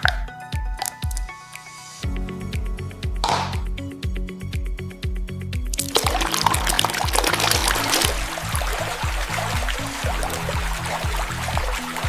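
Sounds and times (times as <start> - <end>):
background music with bass line: 0.0 - 12.0
liquid pouring and trickling: 5.7 - 12.0.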